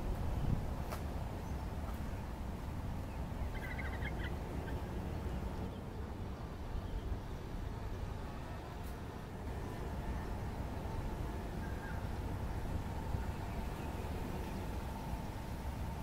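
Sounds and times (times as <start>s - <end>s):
low outdoor rumble: 0.0s - 16.0s
bird chirping: 3.1s - 5.8s.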